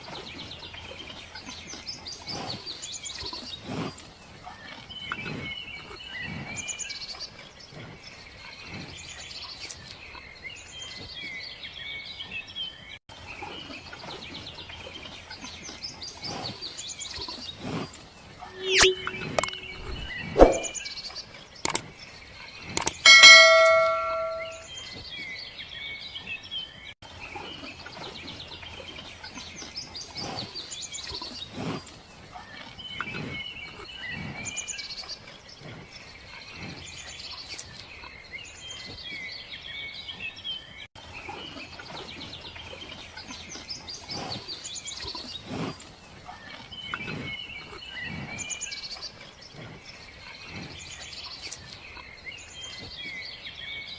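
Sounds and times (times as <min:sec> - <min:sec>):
bell-like ding: 0:18.6 - 0:20.7, 0:23.1 - 0:24.7.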